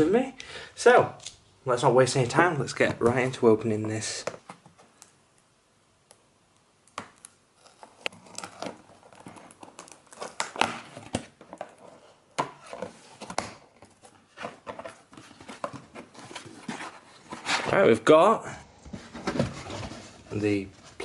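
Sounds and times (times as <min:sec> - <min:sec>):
cardboard clicks and scrapes: 0:07.6 - 0:17.8
packaging rustling: 0:07.6 - 0:17.8.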